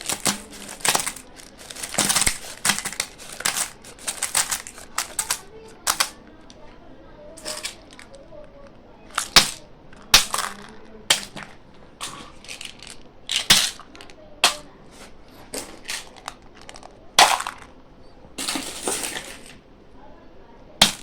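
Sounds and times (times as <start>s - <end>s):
plastic packaging crinkling: 0.0s - 6.2s, 7.4s - 17.7s.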